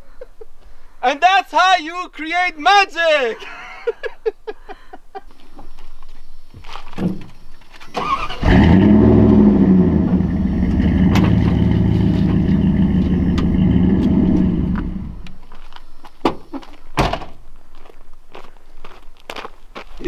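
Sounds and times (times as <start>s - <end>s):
vehicle engine starting and running: 7.8s - 15.4s.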